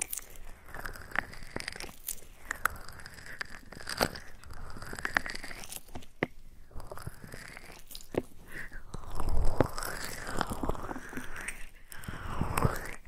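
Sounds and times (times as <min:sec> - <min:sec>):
crackling and sharp clicks: 0:00.0 - 0:13.0.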